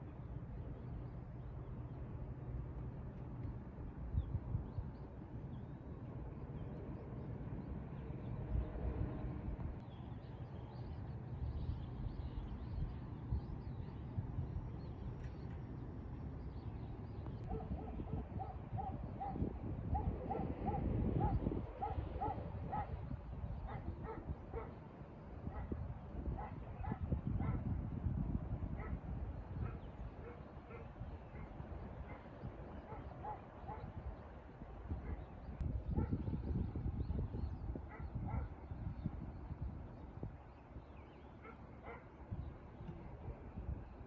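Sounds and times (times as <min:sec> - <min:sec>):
dog barking: 0:17.5 - 0:19.4, 0:23.7 - 0:24.8, 0:32.9 - 0:33.9, 0:41.4 - 0:42.1.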